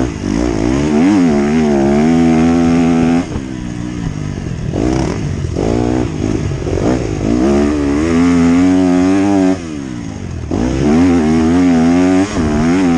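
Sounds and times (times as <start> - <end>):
motocross bike engine revving: 0.0 - 12.9.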